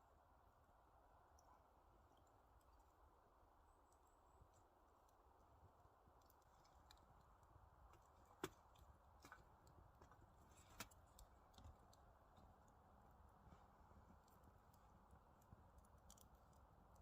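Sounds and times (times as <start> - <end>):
faint clicks and ticks: 3.8 - 17.0.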